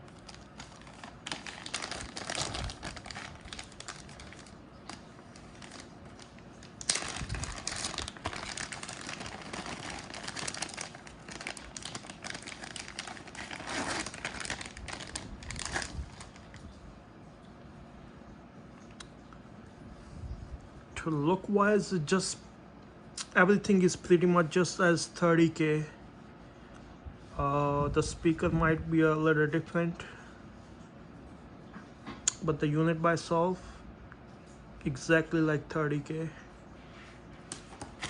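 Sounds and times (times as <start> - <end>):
plastic bags crinkling: 0.0 - 16.7.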